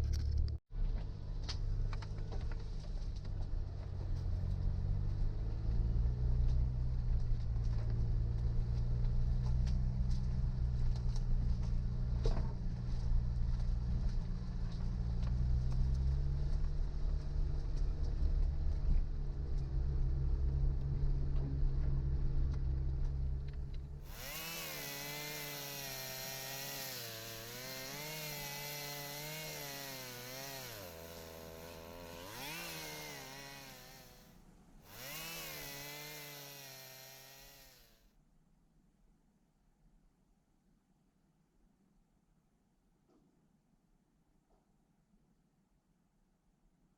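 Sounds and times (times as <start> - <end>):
low engine rumble: 0.0 - 24.4
chainsaw revving: 24.0 - 34.3, 34.9 - 38.0.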